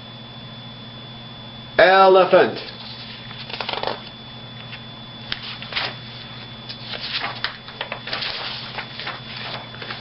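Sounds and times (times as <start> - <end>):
low electrical hum: 0.0 - 10.0
rustling and handling noise: 2.6 - 10.0.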